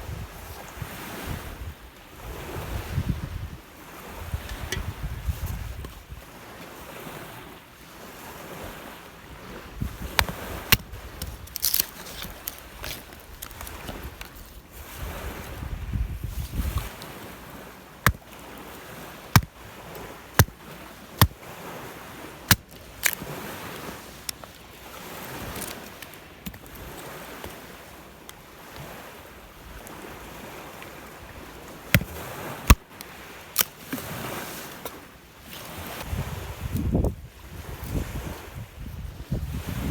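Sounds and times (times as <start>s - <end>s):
wind buffeting microphone: 0.0s - 6.4s, 9.3s - 11.5s, 13.2s - 16.9s, 36.0s - 39.9s
waves breaking on shore: 0.0s - 39.9s.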